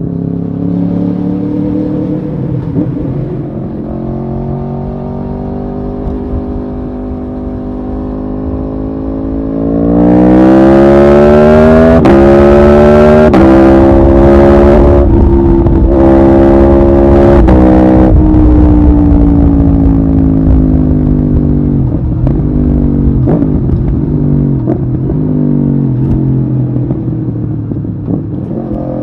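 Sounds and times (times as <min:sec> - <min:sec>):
motorcycle engine accelerating: 0:00.0 - 0:29.0
wind rush over microphone: 0:12.8 - 0:29.0.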